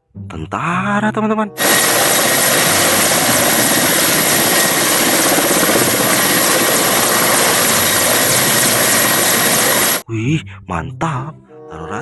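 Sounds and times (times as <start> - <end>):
helicopter rotor chop: 1.6 - 10.0.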